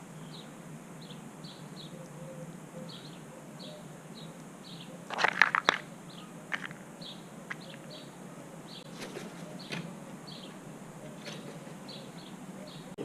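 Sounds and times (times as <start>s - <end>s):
small bird chirping: 0.2s - 13.0s
crow pecking at feeder: 4.9s - 12.9s.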